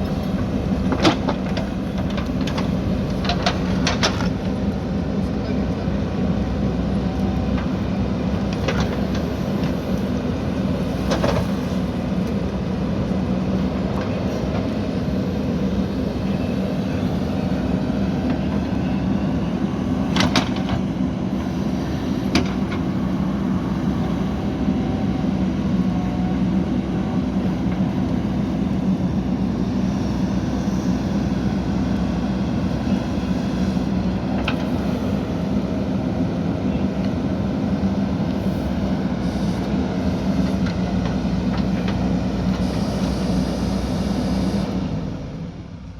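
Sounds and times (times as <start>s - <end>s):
backhoe diesel engine running: 0.0s - 45.9s.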